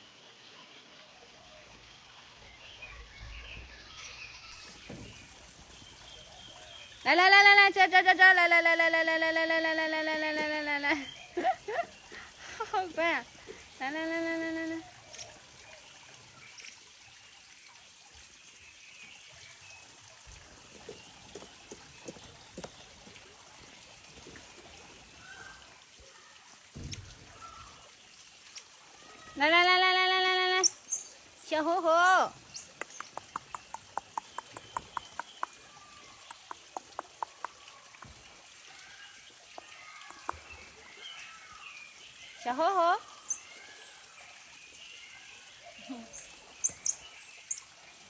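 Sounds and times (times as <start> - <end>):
trickle of running water: 0.0 - 48.0
soft clicks: 32.6 - 35.6.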